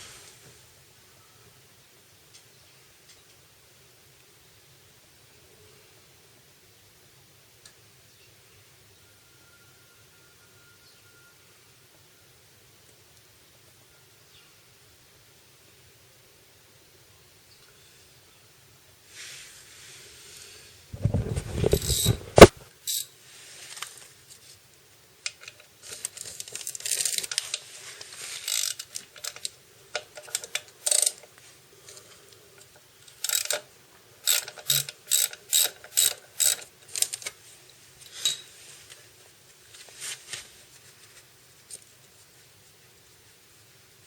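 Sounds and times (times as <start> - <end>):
ratchet wrench clicking: 21.7 - 23.1, 26.7 - 27.4, 28.4 - 29.5, 30.2 - 31.2, 33.1 - 37.3.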